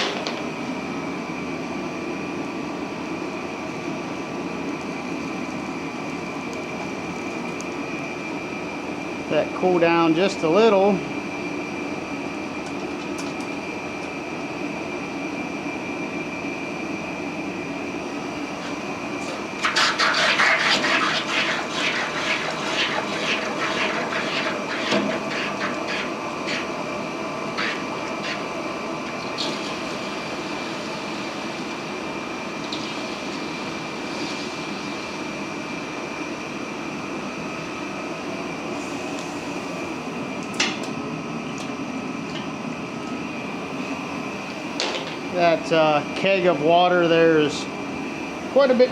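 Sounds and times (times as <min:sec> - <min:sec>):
circulation pump running: 0:00.0 - 0:48.9
gas forge drone: 0:00.0 - 0:48.9
hot steel sizzling in water: 0:18.6 - 0:32.0.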